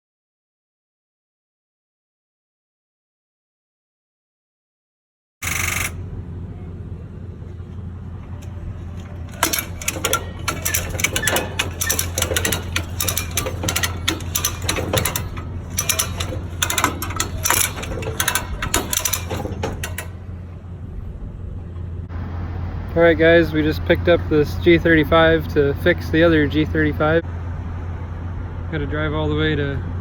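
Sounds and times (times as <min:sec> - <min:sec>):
steady low hum: 0:05.7 - 0:22.9
mechanical rattling and clicking: 0:08.1 - 0:20.7.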